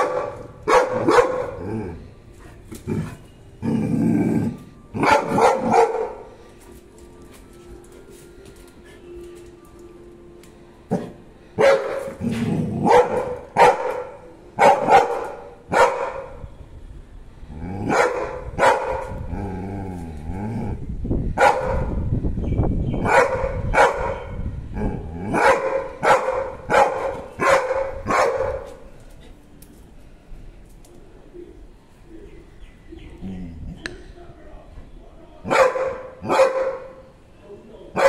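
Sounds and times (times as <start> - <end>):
dog barking: 0.0 - 1.6, 5.0 - 6.3, 11.6 - 12.2, 12.8 - 16.4, 17.9 - 19.2, 21.4 - 21.9, 23.0 - 24.4, 25.3 - 28.8, 35.5 - 37.0
dog growling: 1.4 - 2.2, 2.8 - 4.8, 19.2 - 20.9, 33.2 - 33.8.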